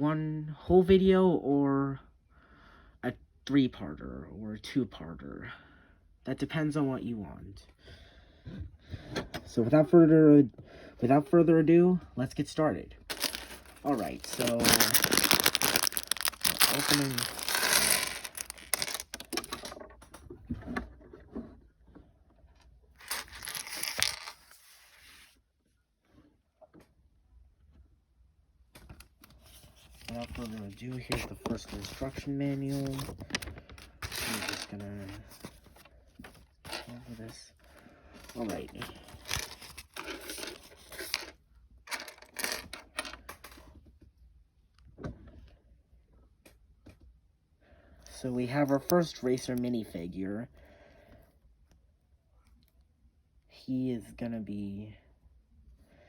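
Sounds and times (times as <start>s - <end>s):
plastic bag rustling: 13.1s - 19.7s, 23.0s - 25.0s, 29.7s - 35.9s, 38.3s - 41.2s
plastic pieces clicking: 13.1s - 19.7s
plastic bricks clattering: 13.1s - 19.8s, 23.0s - 24.4s.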